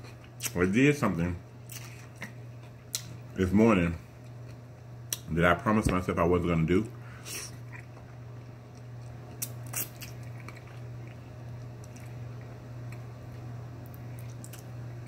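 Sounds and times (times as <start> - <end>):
steady low hum: 0.0 - 15.0
faint chewing: 6.8 - 14.8.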